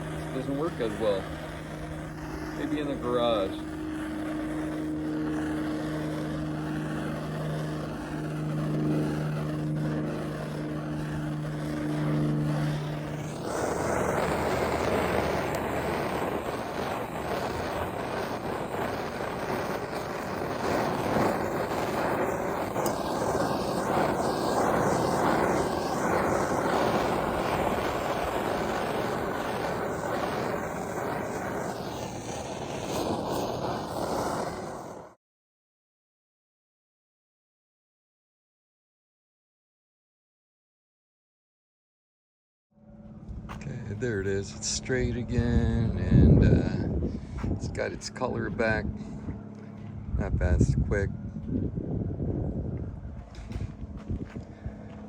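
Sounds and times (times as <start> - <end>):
propane torch flame hissing: 0.0 - 35.2, 43.6 - 49.1
steady low hum: 0.0 - 35.2, 42.8 - 55.0.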